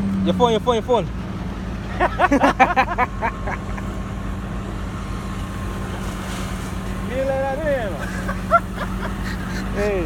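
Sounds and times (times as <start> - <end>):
truck engine droning: 0.0 - 10.0.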